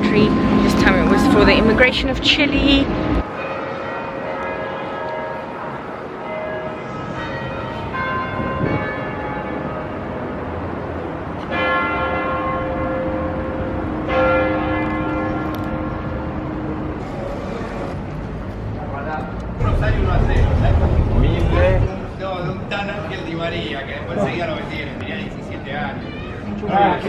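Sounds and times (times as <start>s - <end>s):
bells ringing: 0.0s - 10.8s.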